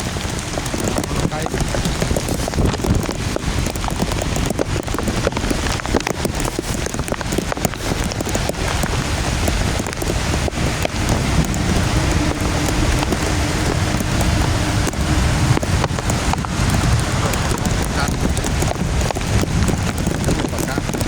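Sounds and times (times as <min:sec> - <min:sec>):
heavy rain pouring: 0:00.0 - 0:21.0
low rumble: 0:08.6 - 0:21.0.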